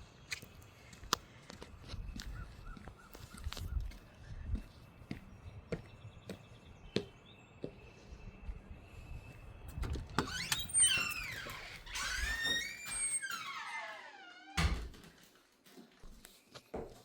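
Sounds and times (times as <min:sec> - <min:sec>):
footsteps walking: 0:00.3 - 0:10.1, 0:14.9 - 0:17.0.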